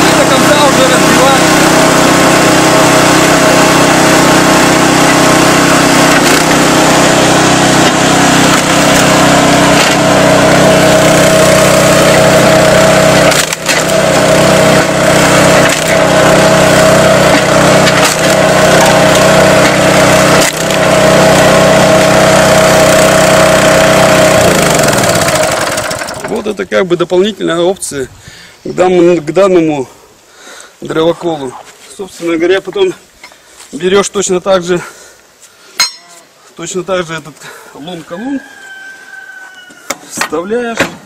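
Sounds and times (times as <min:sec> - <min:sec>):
small engine running: 0:00.0 - 0:26.4
wood cracking and splitting: 0:13.2 - 0:14.2, 0:15.6 - 0:16.1, 0:17.3 - 0:19.8, 0:20.4 - 0:20.8.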